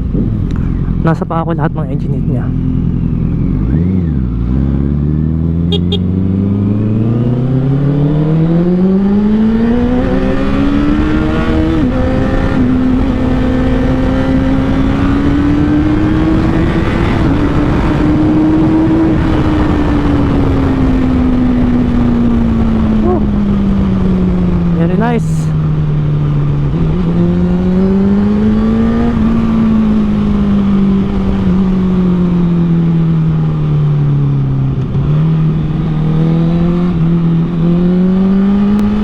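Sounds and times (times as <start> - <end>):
motorcycle engine: 0.0 - 39.0
wind noise: 6.5 - 25.6.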